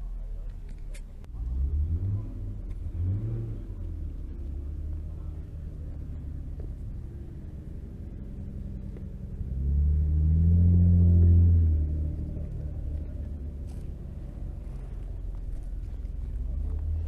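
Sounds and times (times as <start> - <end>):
car engine rumbling and revving: 0.0 - 17.0.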